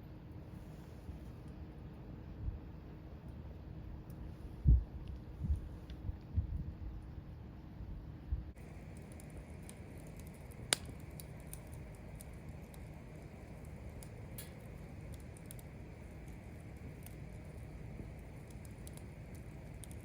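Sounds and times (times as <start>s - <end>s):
wood fire crackling: 8.5s - 20.0s.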